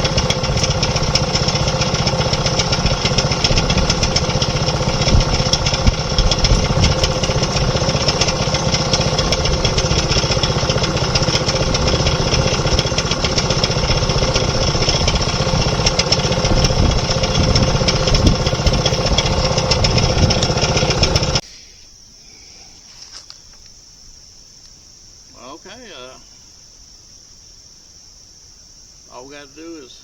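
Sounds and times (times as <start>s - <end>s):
sawmill engine running: 0.0s - 21.4s
crickets chirping: 0.0s - 30.0s.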